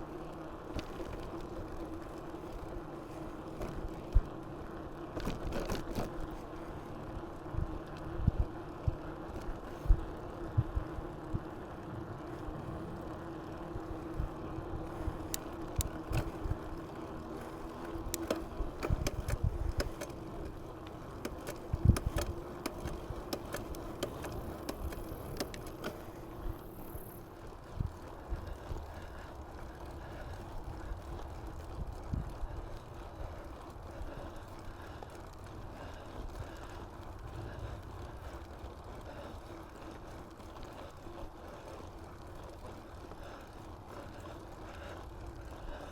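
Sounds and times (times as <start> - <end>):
bike tyre and wind noise: 0.0 - 45.9
bike rattles and knocks: 5.1 - 6.4, 14.9 - 16.8, 17.4 - 27.1.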